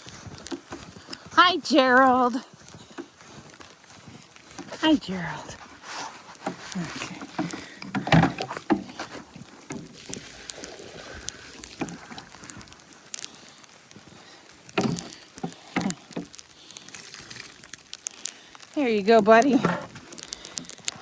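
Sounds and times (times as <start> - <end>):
water sloshing and splashing: 3.8 - 21.0
bucket knocking and scraping: 4.4 - 12.8, 14.6 - 17.9, 18.9 - 20.7.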